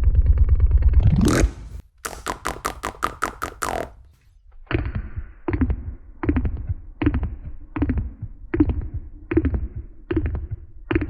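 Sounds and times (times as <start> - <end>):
slowed beatbox lip roll: 1.1 - 4.0.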